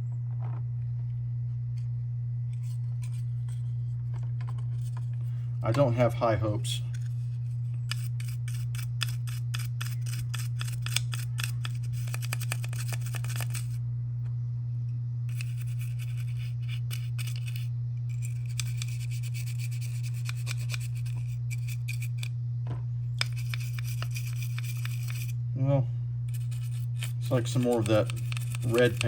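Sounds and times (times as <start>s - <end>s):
steady low hum: 0.0s - 29.0s
toothbrush scrubbing plastic: 7.9s - 13.8s, 15.3s - 22.3s, 23.2s - 25.4s, 26.3s - 29.0s.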